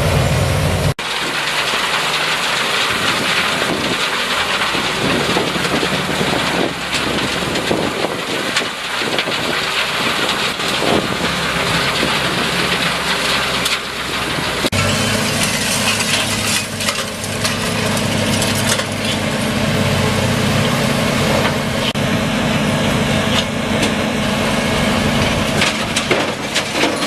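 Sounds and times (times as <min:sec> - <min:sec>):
material clattering through separator: 0:01.0 - 0:19.5, 0:25.1 - 0:27.0.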